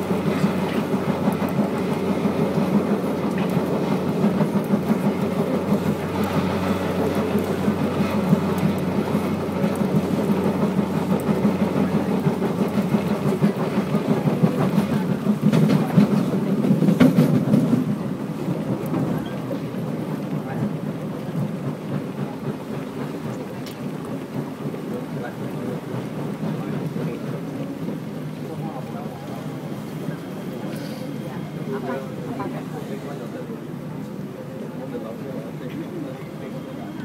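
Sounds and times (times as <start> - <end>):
wheels rumbling on rail: 0.0 - 37.0.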